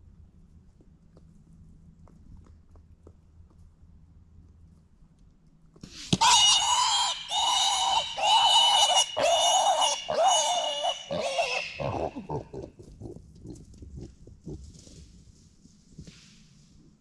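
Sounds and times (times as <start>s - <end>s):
hog squealing: 6.2s - 12.7s
hog grunting: 6.2s - 14.8s.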